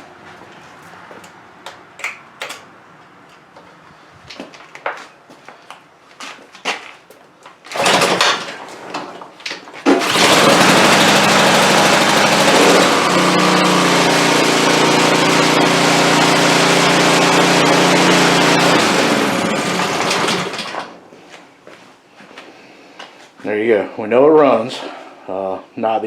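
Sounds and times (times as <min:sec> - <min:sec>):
recoil starter rasping: 0:07.7 - 0:08.6, 0:09.9 - 0:21.0
small gas engine running: 0:07.7 - 0:08.6, 0:09.9 - 0:21.0.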